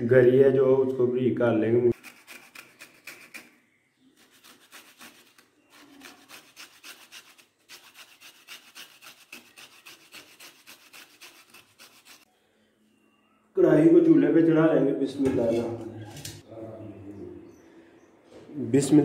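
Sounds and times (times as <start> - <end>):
coconut being grated by hand: 1.9 - 3.5, 4.2 - 12.3.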